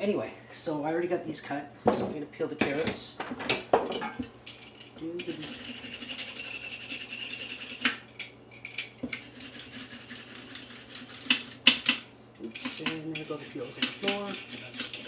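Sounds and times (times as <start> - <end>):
steady low hum: 0.0 - 15.0
peeler scraping a carrot: 5.2 - 7.9, 9.2 - 11.9, 12.5 - 15.0.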